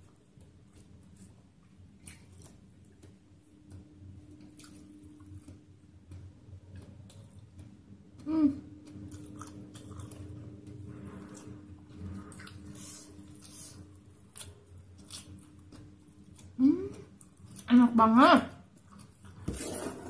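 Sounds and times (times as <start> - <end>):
chewing with mouth clicks: 0.0 - 17.7
person humming mmm: 8.2 - 8.7, 16.6 - 17.1.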